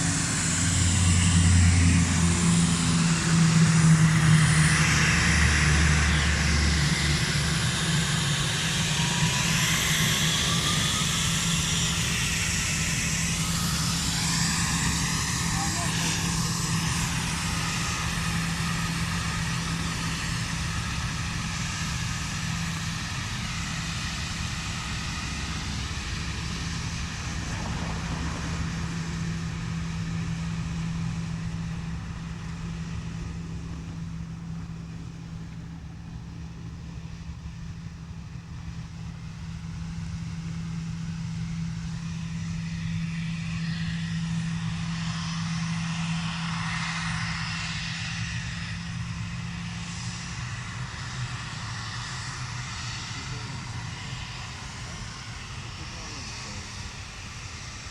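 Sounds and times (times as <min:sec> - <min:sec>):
airliner engine noise: 0:00.0 - 0:57.9.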